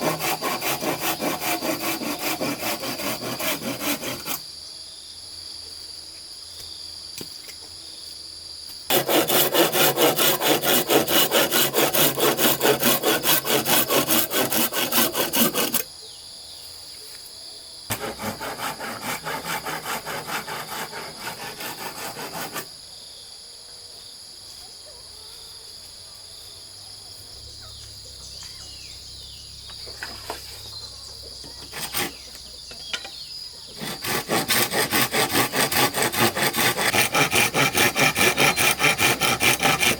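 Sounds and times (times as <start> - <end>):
hand saw cutting: 0.0 - 4.4, 8.9 - 15.9, 17.9 - 22.7, 31.6 - 32.4, 33.7 - 39.9
insects droning: 0.0 - 39.9.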